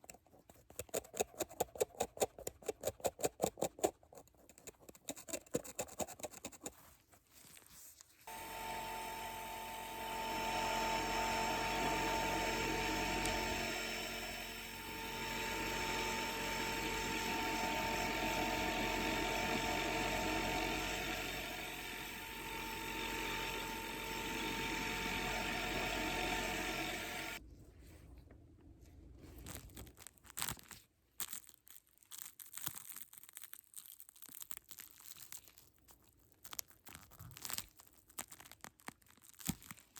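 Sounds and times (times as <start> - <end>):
dental drill whining: 8.3 - 27.4.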